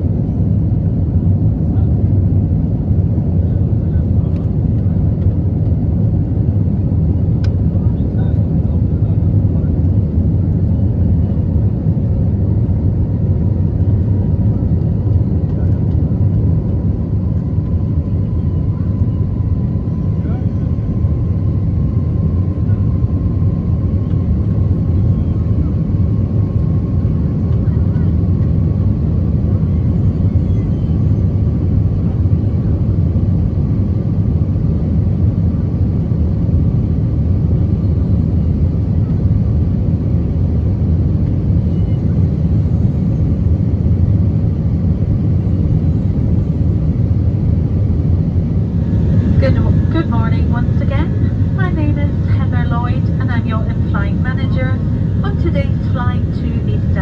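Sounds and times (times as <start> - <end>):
airplane cabin engine rumble: 0.0 - 57.0
faint steady whine: 45.0 - 57.0.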